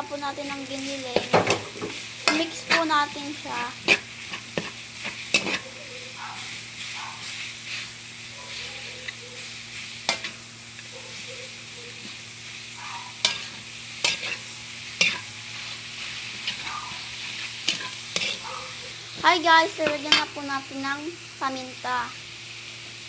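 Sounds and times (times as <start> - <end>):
food sizzling in a pan: 0.0 - 23.0
utensil scraping a pan: 3.8 - 5.7, 16.3 - 18.7.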